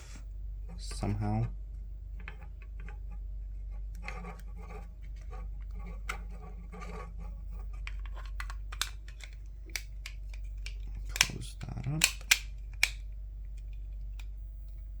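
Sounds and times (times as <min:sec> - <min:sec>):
steady low hum: 0:00.0 - 0:15.0
sharp plastic clicks: 0:07.9 - 0:14.3.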